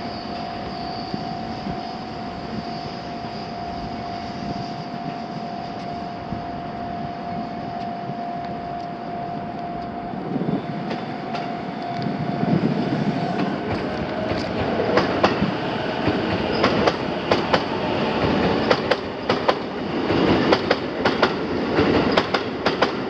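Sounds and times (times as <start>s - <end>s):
electric train whine: 0.0s - 23.0s
train wheel rumble and clicks: 4.9s - 6.2s, 7.7s - 23.0s.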